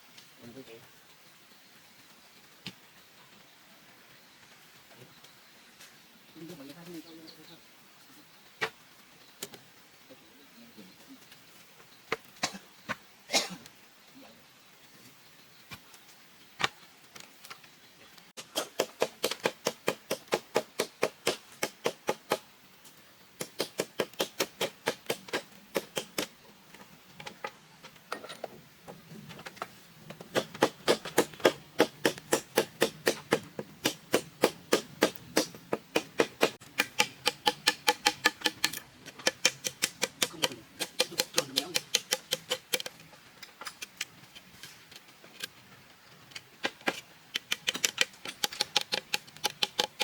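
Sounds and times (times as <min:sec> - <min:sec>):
rapid tool strikes on wood: 0:18.4 - 0:22.5, 0:23.4 - 0:26.3, 0:30.2 - 0:43.0, 0:46.6 - 0:50.0.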